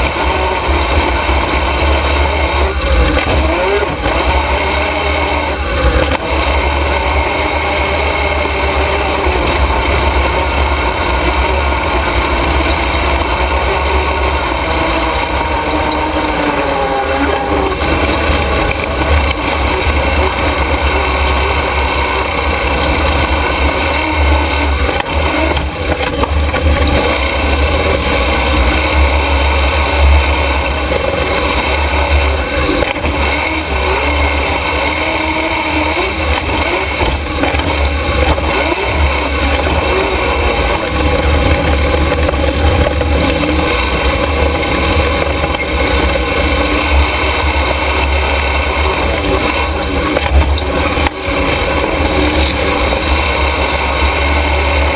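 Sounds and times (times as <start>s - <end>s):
race truck engine: 0.0s - 54.9s.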